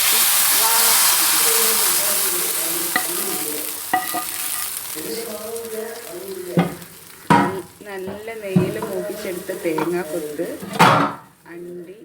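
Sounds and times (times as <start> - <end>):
hot oil sizzling: 0.0 - 12.0
spoon knocking against pot: 2.9 - 4.7, 6.6 - 11.3
spoon stirring with clicks: 3.0 - 4.8.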